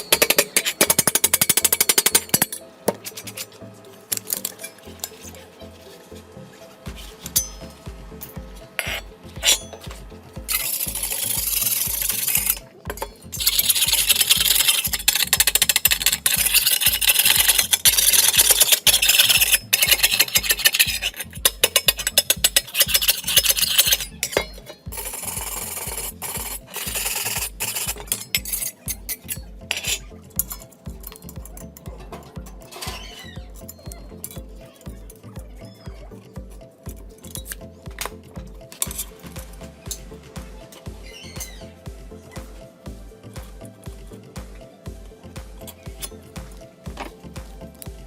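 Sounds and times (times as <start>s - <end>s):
background music: 0.0s - 48.0s
rasping on rusty steel: 10.5s - 30.1s.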